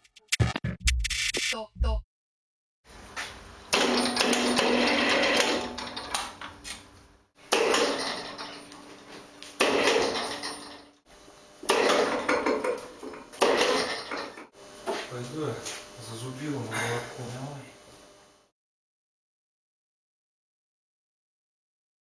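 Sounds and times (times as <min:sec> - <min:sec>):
metal tools clattering: 0:07.7 - 0:09.0, 0:09.7 - 0:10.9, 0:11.8 - 0:14.5.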